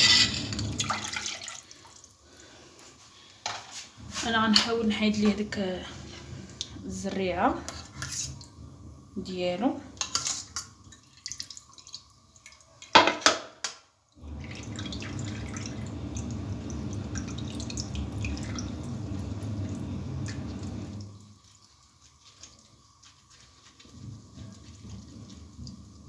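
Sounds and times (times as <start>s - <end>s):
glass clinks and drips: 0.0s - 0.6s.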